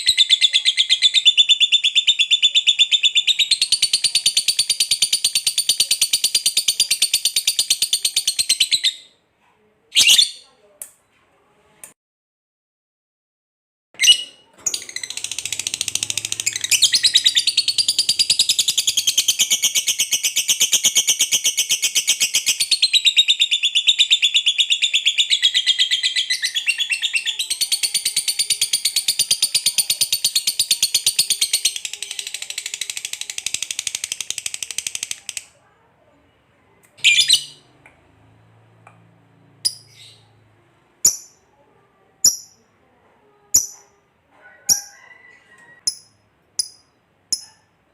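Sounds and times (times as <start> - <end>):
lovebird chattering trill: 14.0 - 35.5, 43.5 - 43.9.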